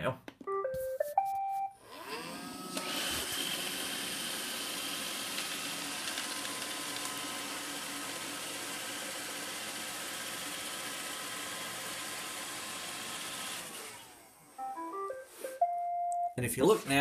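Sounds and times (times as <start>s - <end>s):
robot vacuum motor whirring: 1.8s - 14.6s.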